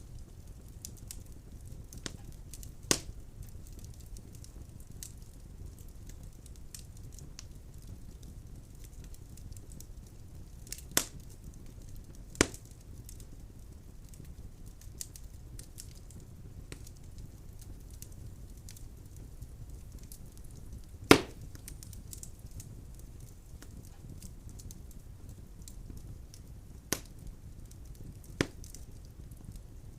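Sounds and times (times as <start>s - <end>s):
fire crackling in a fireplace: 0.0s - 29.9s
logs popping: 21.1s - 22.3s.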